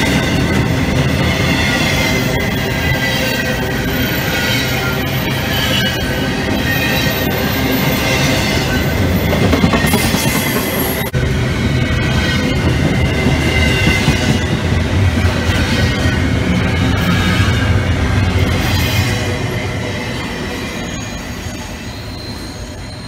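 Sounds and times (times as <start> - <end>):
high wheel squeal: 0.0 - 11.2, 11.8 - 23.0
train wheels rumbling on rail: 0.0 - 23.0.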